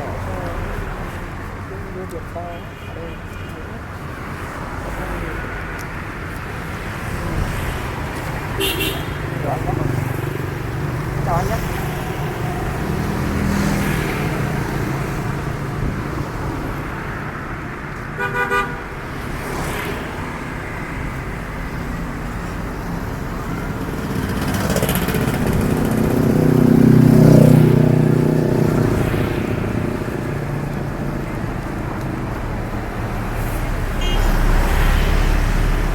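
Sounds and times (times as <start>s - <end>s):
street traffic: 0.0s - 35.9s
car horn beeping: 8.6s - 9.2s, 18.2s - 18.9s, 33.9s - 35.5s
heavy vehicle engine passing: 19.4s - 35.9s.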